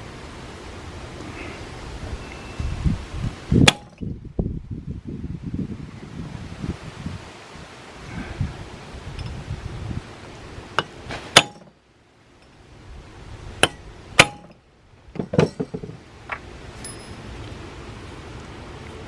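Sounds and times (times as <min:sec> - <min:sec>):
hammer clinking on metal: 0:10.8 - 0:11.7, 0:13.6 - 0:14.6, 0:15.2 - 0:16.0, 0:16.8 - 0:17.2.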